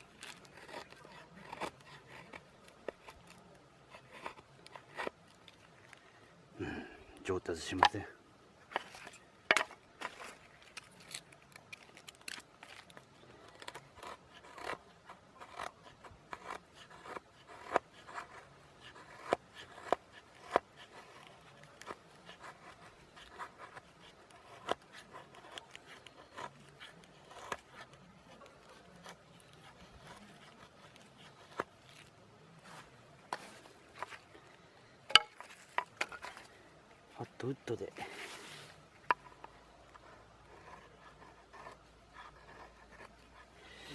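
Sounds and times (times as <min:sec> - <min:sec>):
knife scraping wood: 0:00.0 - 0:06.0, 0:08.7 - 0:43.9.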